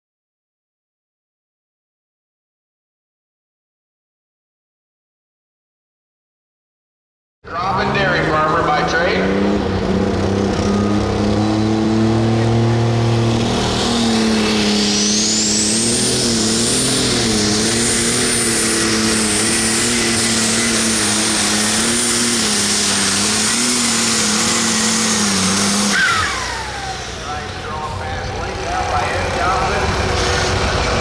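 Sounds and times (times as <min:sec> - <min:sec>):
diesel tractor engine at full load: 0:07.5 - 0:31.0
high turbo whine: 0:07.5 - 0:31.0.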